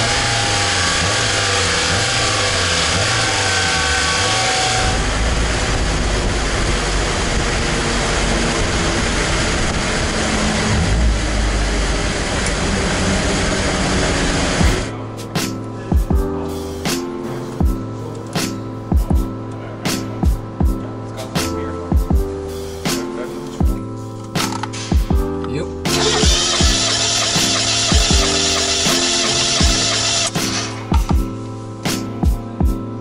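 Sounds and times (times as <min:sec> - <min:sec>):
deep rushing noise from dyno: 0:00.0 - 0:14.9
race car engine at high revs: 0:00.0 - 0:14.9, 0:25.9 - 0:31.0.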